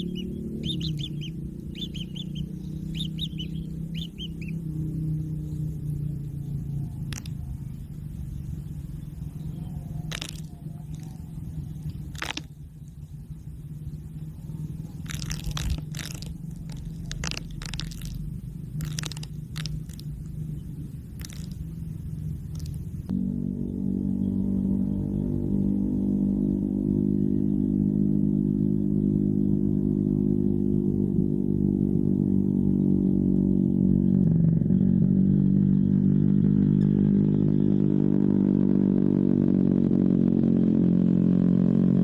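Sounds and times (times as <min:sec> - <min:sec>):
low mechanical hum: 0:00.0 - 0:42.0
sharp clicks: 0:07.1 - 0:07.4.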